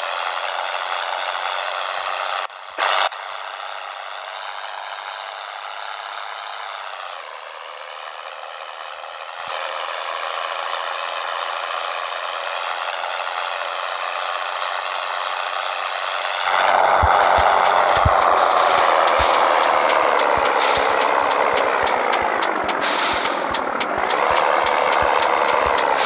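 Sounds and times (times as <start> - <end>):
truck engine drone: 16.4 - 26.0
rattle: 17.4 - 26.0.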